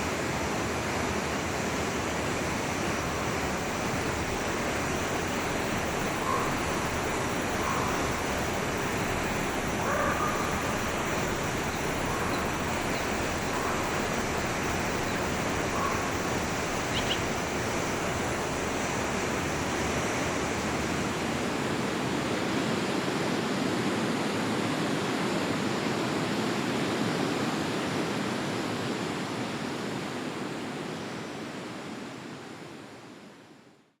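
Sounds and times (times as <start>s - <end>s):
stream flowing: 0.0s - 33.8s
faint bird chirps: 16.8s - 17.3s.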